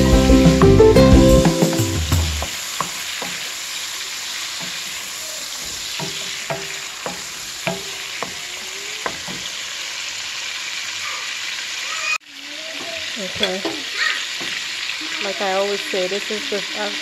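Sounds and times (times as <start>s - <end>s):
shrimp sizzling in hot oil: 1.4s - 17.0s
wooden spatula knocking on pan: 5.6s - 8.4s, 9.0s - 9.5s.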